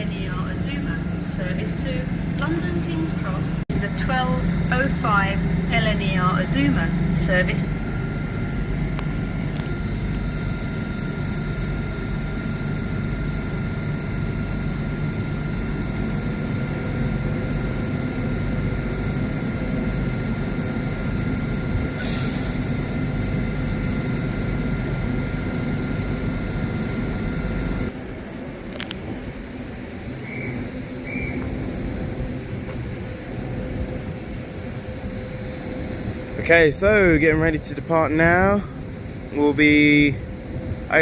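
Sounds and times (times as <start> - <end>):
electric train humming: 0.0 - 41.0
air hiss: 22.0 - 22.7.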